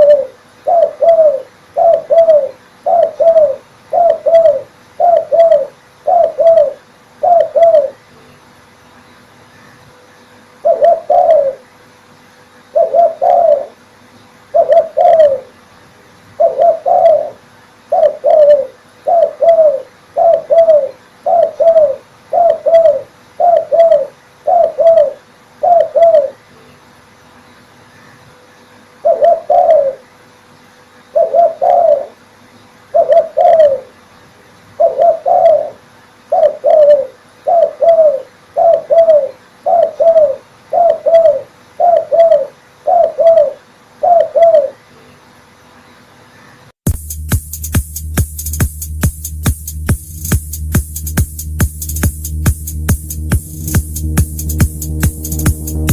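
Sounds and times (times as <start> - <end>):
dove cooing: 0.0 - 8.0, 10.6 - 11.7, 12.7 - 13.8, 14.5 - 15.6, 16.4 - 26.4, 29.0 - 30.1, 31.1 - 32.2, 32.9 - 34.0, 34.8 - 44.8.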